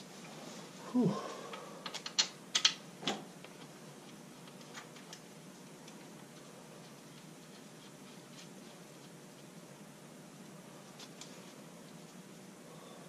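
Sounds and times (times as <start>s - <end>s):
sharp clicks and knocks: 1.8s - 3.7s.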